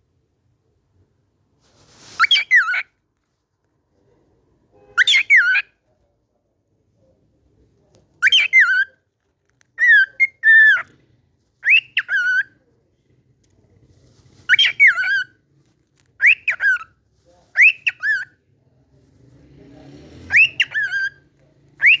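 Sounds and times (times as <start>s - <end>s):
cockatiel whistling a tune: 2.2s - 2.8s, 5.0s - 5.6s, 8.2s - 8.9s, 11.6s - 12.5s, 14.5s - 15.3s, 16.2s - 16.9s, 17.6s - 18.3s, 20.3s - 21.2s, 21.8s - 22.0s.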